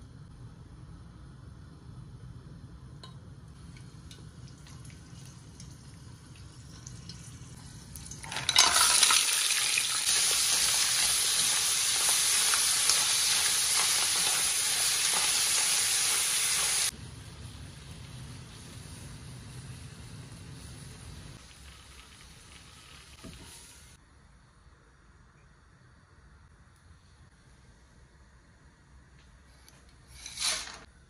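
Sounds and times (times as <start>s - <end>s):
low hum with faint ticks: 2.8s - 8.1s, 25.2s - 27.6s, 29.0s - 30.0s
mussels sizzling in oil: 4.6s - 24.0s.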